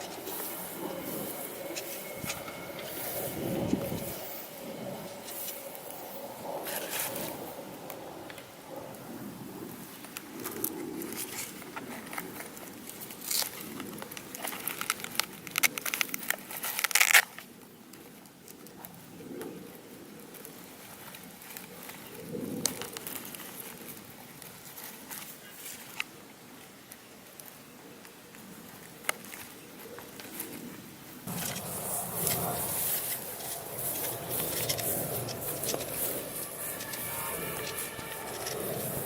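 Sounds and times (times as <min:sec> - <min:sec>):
paper crinkling and crackling: 0:10.0 - 0:19.1, 0:19.7 - 0:39.0.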